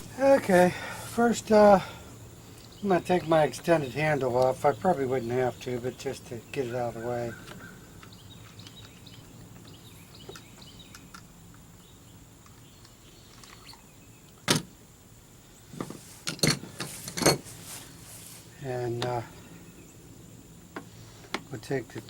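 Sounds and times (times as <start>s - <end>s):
hard parts knocking and clattering: 15.8s - 17.5s.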